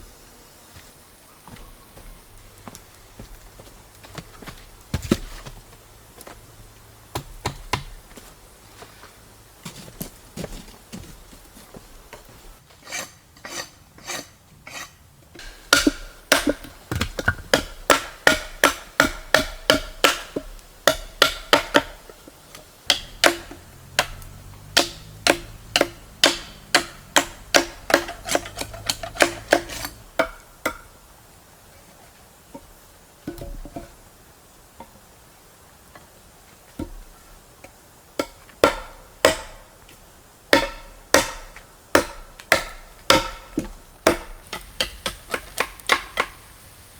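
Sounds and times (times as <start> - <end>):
hand tool striking with ringing: 22.9 - 30.0.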